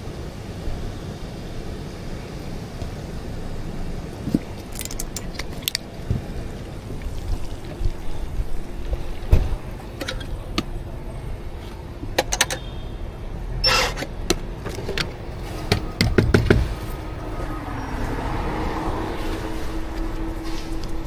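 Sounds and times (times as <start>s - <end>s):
coffee equipment clicks and knocks: 12.2s - 12.7s.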